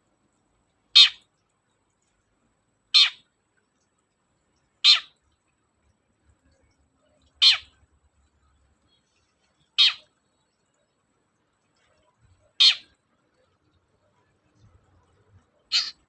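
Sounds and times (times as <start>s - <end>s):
shrike harsh screechy calls: 1.0s - 1.2s, 3.0s - 3.2s, 4.8s - 5.2s, 7.4s - 7.8s, 9.8s - 10.1s, 12.6s - 13.0s, 15.7s - 16.0s.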